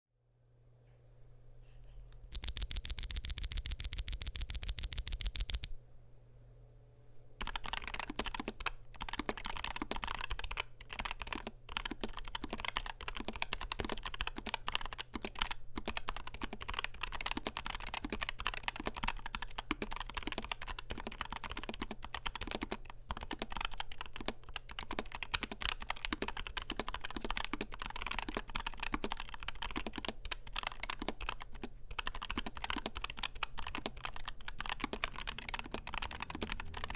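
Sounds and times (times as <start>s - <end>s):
rapid even run of clicks: 2.3s - 5.7s
keyboard key clicks: 2.3s - 5.8s, 7.4s - 36.9s.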